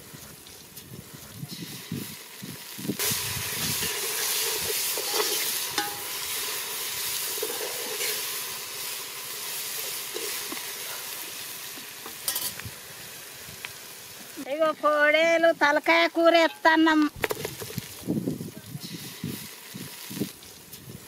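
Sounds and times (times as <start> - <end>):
food sizzling in oil: 0.0 - 21.0
metal ladle scraping pot: 3.1 - 6.4, 7.3 - 8.4.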